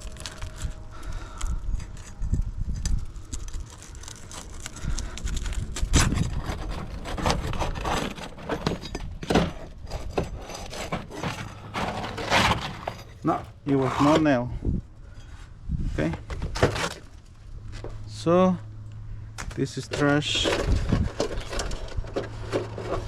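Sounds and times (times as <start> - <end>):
shingle knocking and scraping: 4.0 - 14.5, 16.2 - 17.2.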